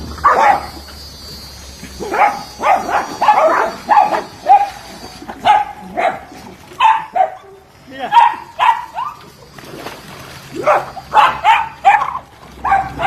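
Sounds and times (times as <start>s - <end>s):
dog barking: 0.2s - 0.8s, 2.0s - 9.2s, 10.6s - 13.0s.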